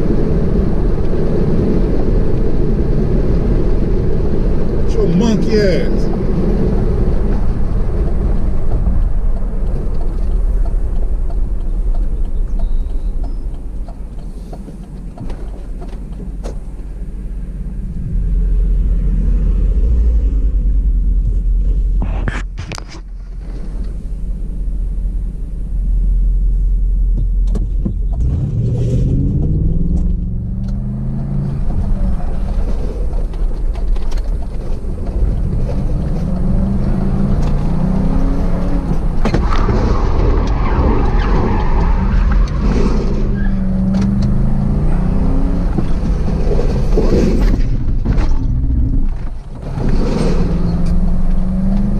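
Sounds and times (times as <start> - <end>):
road rumble: 0.0 - 51.9
car engine revving: 15.6 - 22.0, 24.8 - 51.9.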